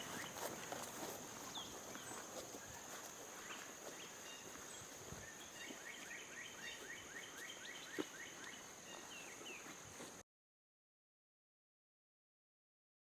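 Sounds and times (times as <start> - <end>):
small bird singing: 1.5 - 9.8.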